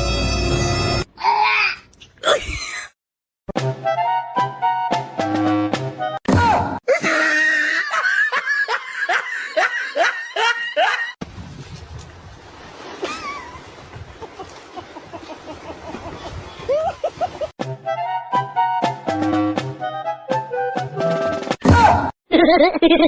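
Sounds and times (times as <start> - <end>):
loud laughter in bursts: 6.9 - 11.2, 22.3 - 23.0.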